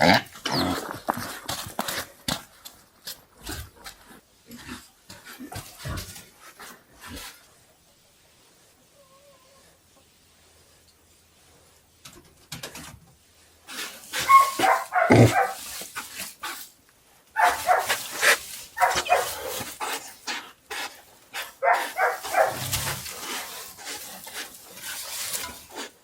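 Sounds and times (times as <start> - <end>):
loud animal cries: 14.2 - 15.5.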